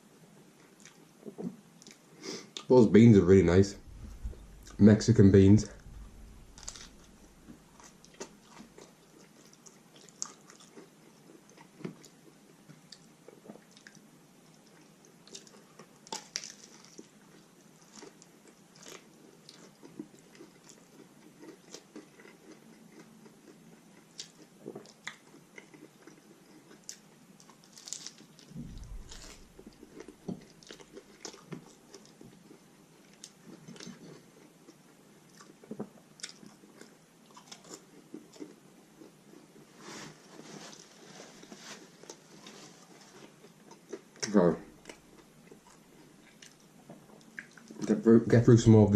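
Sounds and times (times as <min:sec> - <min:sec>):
soft low bump: 0:03.6 - 0:07.8, 0:28.5 - 0:30.5
person chewing crunchy food: 0:06.0 - 0:12.2, 0:14.7 - 0:39.7.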